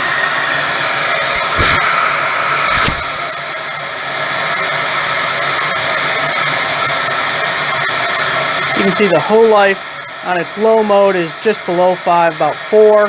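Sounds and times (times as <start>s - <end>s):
vacuum motor hum and whine: 0.0s - 13.0s
low thumps: 1.4s - 3.3s.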